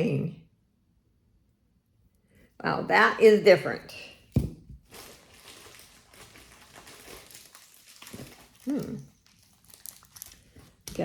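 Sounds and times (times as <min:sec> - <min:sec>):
jewelry and packaging rustling: 0:03.9 - 0:11.0.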